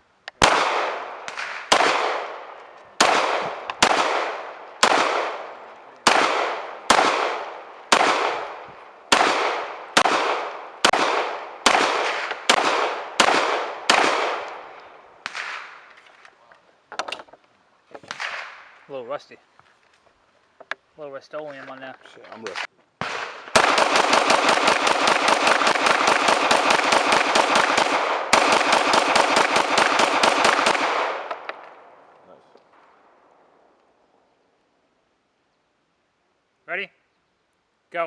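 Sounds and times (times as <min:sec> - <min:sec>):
gunshots echoing: 0:00.4 - 0:15.9, 0:18.0 - 0:18.8, 0:22.5 - 0:32.1.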